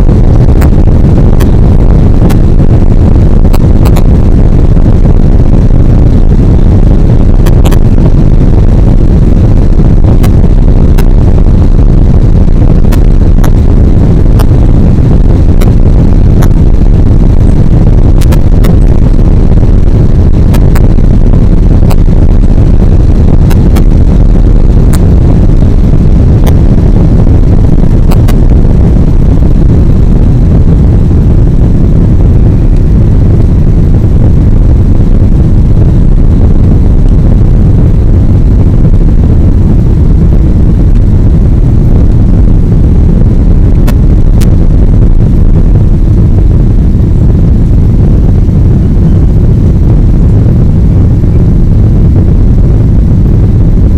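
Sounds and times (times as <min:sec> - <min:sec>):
jet engine low rumble: 0:00.0 - 0:53.9.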